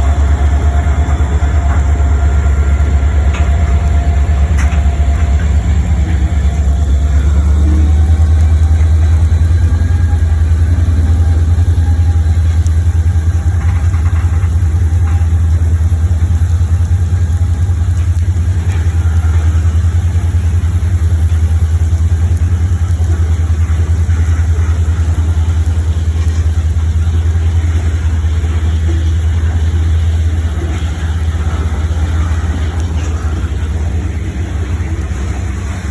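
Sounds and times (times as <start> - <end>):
low engine rumble: 0.0 - 35.9.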